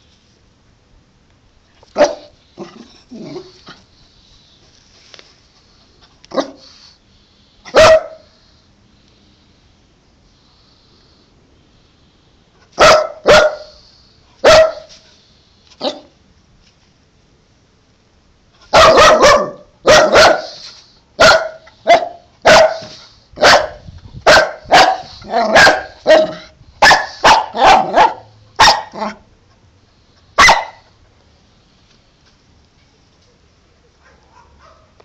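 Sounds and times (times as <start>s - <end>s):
dog barking: 2.0s - 2.3s, 6.3s - 6.7s, 7.7s - 8.3s, 12.8s - 13.8s, 14.4s - 15.0s, 18.7s - 20.6s, 21.2s - 29.2s, 30.4s - 30.9s, 34.0s - 35.0s.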